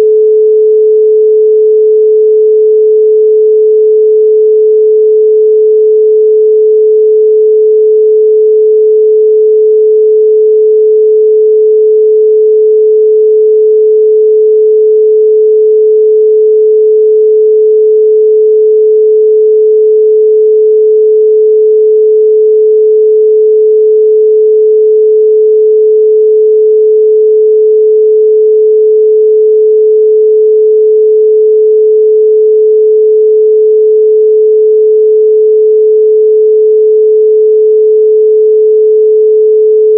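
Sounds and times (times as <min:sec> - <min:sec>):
pure sine tone: 0:00.0 - 0:39.9.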